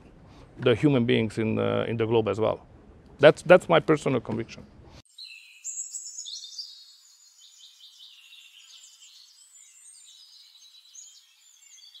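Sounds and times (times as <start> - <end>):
birds chirping and trilling: 5.1 - 12.0.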